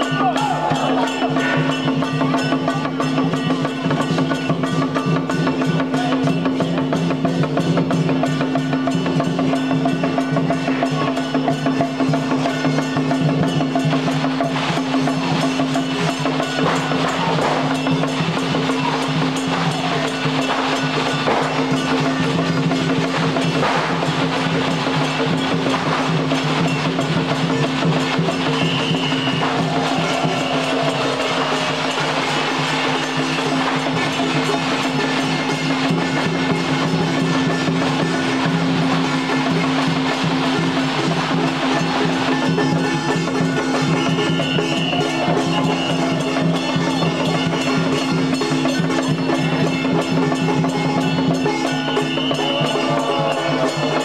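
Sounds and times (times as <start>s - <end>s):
fast drumming and percussion: 0.0s - 54.0s.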